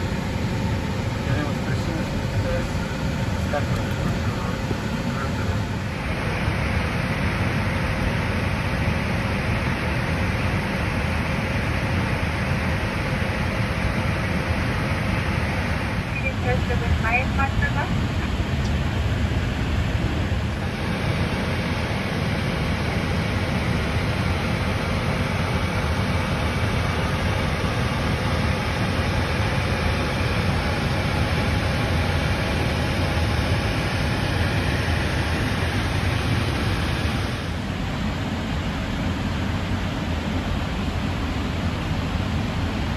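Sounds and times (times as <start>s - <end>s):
cockpit airflow and engine noise: 0.0s - 42.9s.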